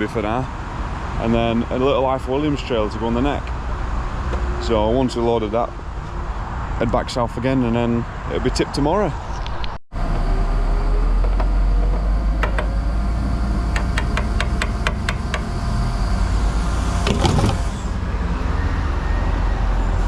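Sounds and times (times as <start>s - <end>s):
lorry engine rumbling: 10.0s - 20.0s.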